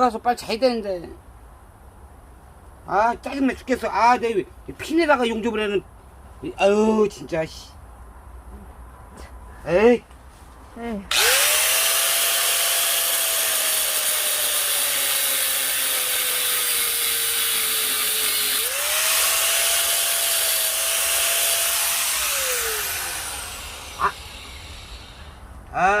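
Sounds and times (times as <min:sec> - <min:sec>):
angle grinder grinding steel: 0:11.1 - 0:25.4.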